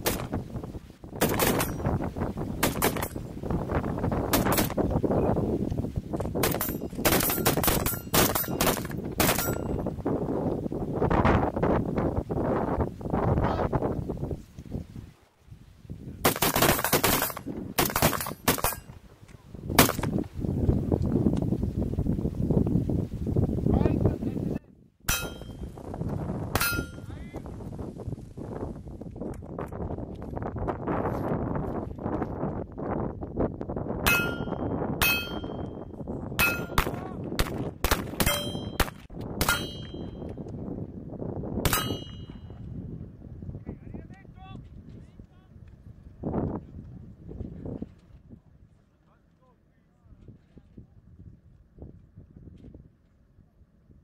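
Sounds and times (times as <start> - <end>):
wind buffeting microphone: 0.0 - 48.9, 50.1 - 54.0
bullets ringing on steel targets: 1.2 - 1.9, 6.4 - 9.8, 16.3 - 18.9, 25.1 - 25.6, 26.6 - 27.1, 34.1 - 35.7, 36.4 - 37.0, 38.2 - 40.3, 41.7 - 42.5
rapid gunshots: 2.6 - 3.2, 6.4 - 9.6, 16.2 - 18.8.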